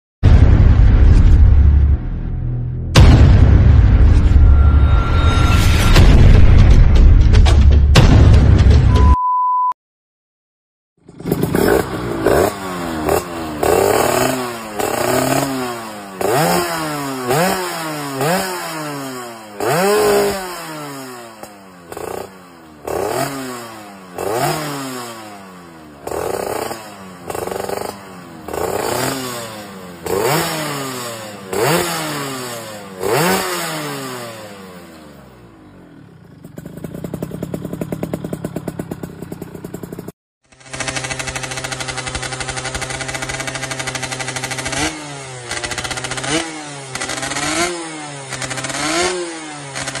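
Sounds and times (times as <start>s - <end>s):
two-stroke engine revving: 11.0s - 50.0s
engine rattly idle: 35.9s - 44.6s.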